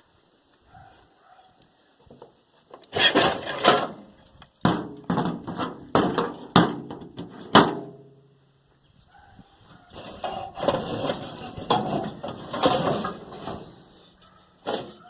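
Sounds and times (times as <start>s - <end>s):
metal junk clattering: 2.9s - 8.1s, 9.9s - 13.8s, 14.6s - 15.0s.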